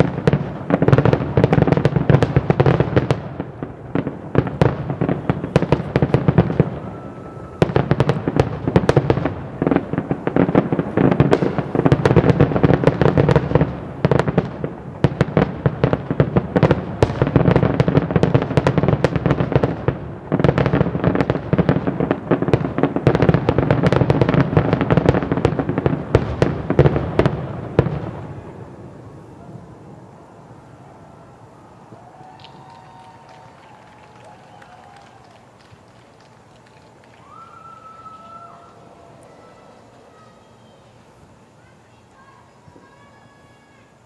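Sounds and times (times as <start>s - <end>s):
fireworks bursting and crackling: 0.0s - 44.0s.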